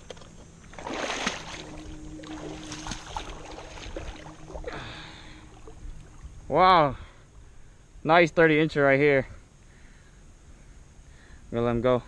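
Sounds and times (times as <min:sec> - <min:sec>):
river water splashing: 0:00.0 - 0:06.7.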